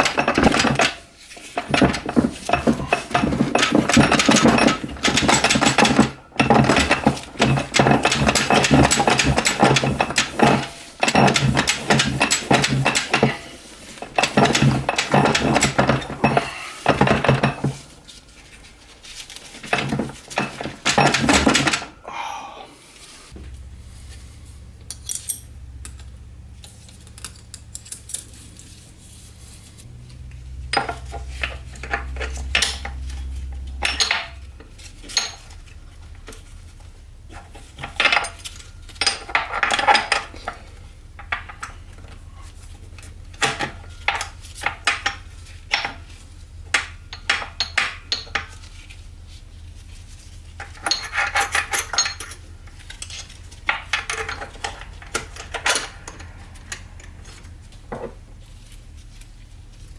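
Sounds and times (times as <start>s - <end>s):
metal parts clinking: 0.0s - 17.8s, 19.3s - 22.0s, 24.8s - 28.8s, 30.7s - 35.6s, 50.6s - 57.6s.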